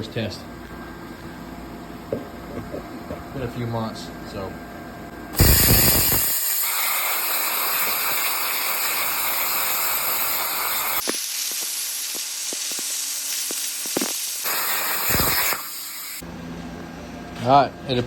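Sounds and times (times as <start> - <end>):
plasma torch cutting steel hiss: 5.4 - 16.2.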